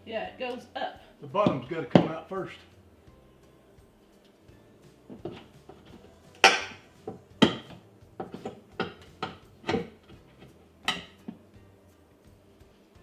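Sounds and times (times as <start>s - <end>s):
tools knocking and prying wood: 1.4s - 2.2s, 5.1s - 11.4s.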